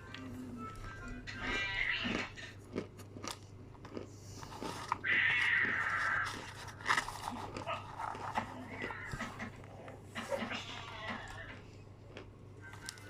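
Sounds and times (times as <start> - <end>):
crunchy chewing: 0.1 - 13.0.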